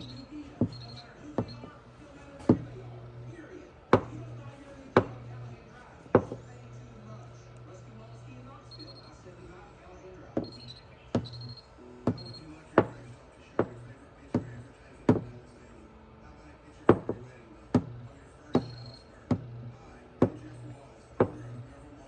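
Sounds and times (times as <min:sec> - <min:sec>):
hammer tapping on metal tool: 0:00.0 - 0:01.8, 0:05.0 - 0:05.2, 0:10.4 - 0:13.0, 0:18.6 - 0:19.4.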